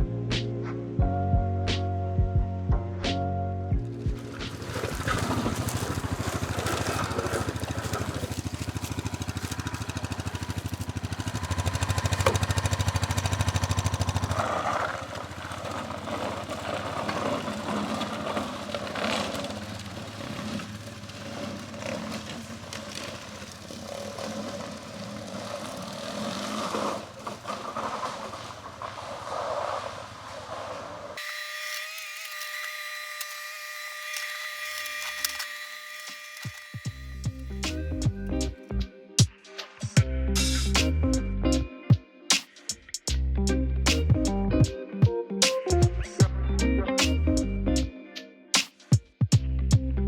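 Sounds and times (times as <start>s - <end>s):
engine humming: 3.3s - 31.2s, 36.6s - 38.9s
rough uneven noise: 3.9s - 31.2s.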